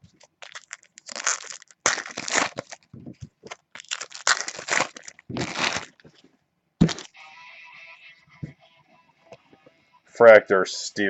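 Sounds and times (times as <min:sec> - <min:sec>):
foil wrappers tearing and crinkling: 0:00.3 - 0:06.1, 0:06.8 - 0:07.1.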